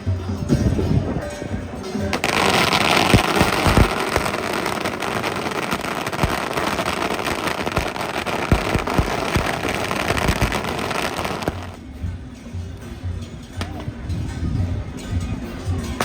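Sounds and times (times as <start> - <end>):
firecrackers crackling: 0.0 - 14.2
firecracker bangs: 2.1 - 11.8.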